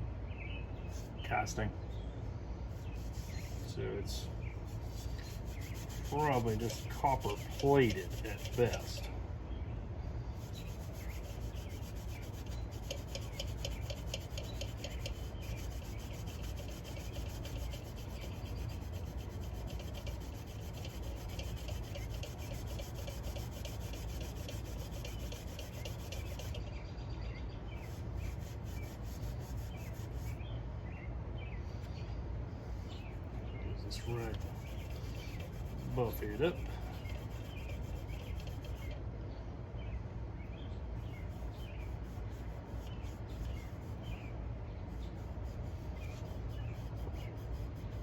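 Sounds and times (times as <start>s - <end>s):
cloth rag rubbing metal: 2.8s - 9.1s, 10.4s - 26.7s, 27.8s - 30.4s, 33.9s - 39.0s, 44.9s - 48.0s.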